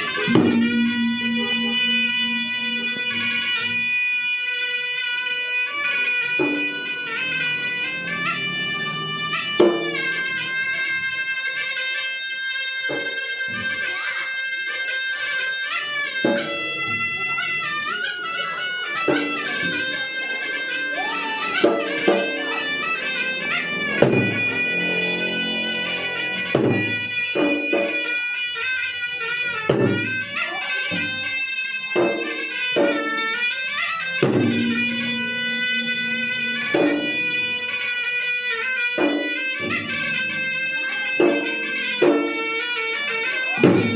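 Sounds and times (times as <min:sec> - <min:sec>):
shrill double-reed pipe melody: 0:00.0 - 0:43.9
drums striking: 0:00.1 - 0:03.9, 0:19.0 - 0:28.1, 0:34.1 - 0:37.7, 0:43.6 - 0:43.9.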